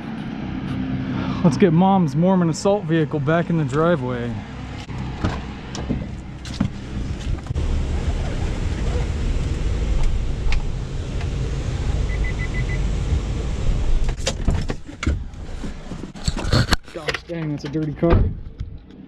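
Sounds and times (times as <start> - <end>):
van engine running: 2.5 - 16.4.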